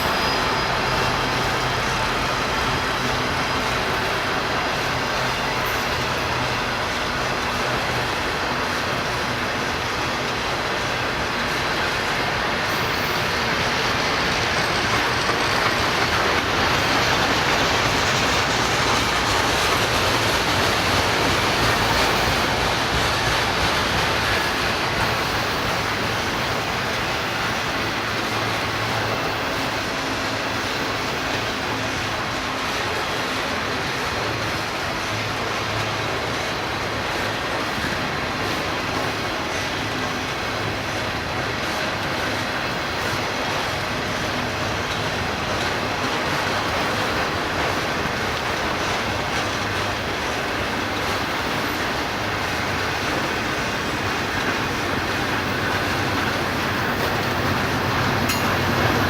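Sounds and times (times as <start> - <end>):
train wheels on rails: 0.0 - 59.0.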